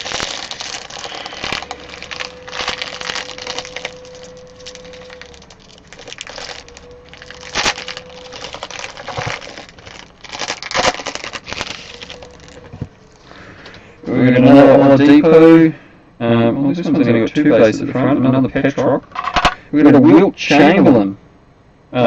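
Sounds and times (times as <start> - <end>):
foil wrappers crinkling: 0.0 - 13.4.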